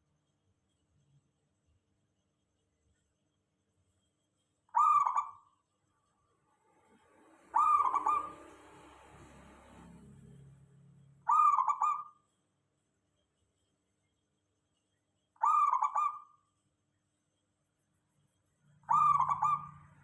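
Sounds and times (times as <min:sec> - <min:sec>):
faint low hum: 0:00.0 - 0:20.0
dove cooing: 0:04.8 - 0:05.4, 0:07.5 - 0:08.6, 0:11.3 - 0:12.2, 0:15.4 - 0:16.4, 0:18.9 - 0:19.7.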